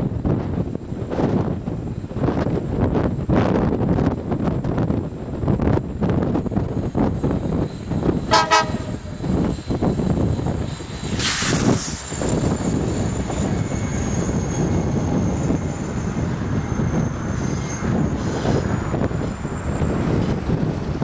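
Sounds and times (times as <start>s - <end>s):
train wheels rumbling on rails: 0.0s - 21.0s
thin high whine: 6.6s - 20.4s
brief hiss: 11.2s - 12.0s.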